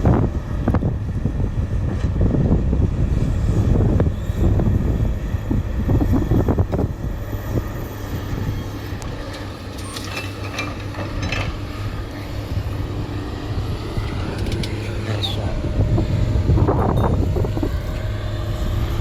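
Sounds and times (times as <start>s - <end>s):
diesel engine running: 0.0s - 19.0s
clanking and rattling: 9.0s - 11.9s.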